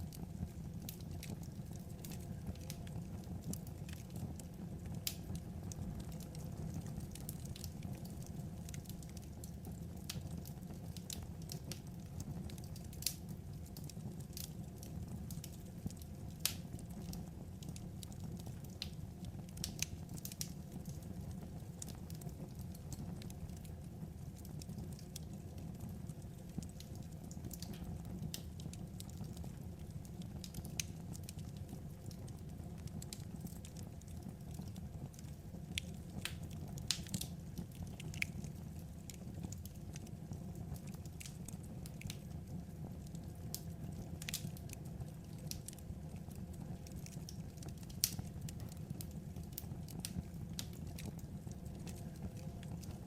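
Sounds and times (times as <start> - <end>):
low rumble of fire: 0.0 - 53.0
wood fire crackling and popping: 0.0 - 53.0.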